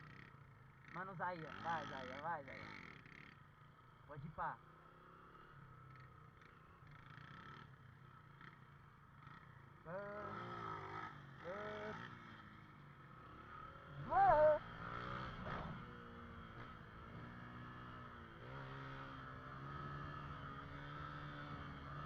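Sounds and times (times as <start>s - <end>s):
motorcycle engine revving: 4.9s - 22.0s.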